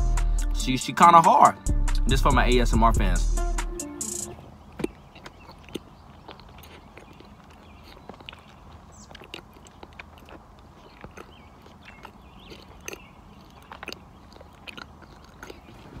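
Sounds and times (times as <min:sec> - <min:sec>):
mouth clicks: 0:04.0 - 0:16.0
chewing cookie: 0:04.3 - 0:16.0
wet lip smacks: 0:04.6 - 0:16.0.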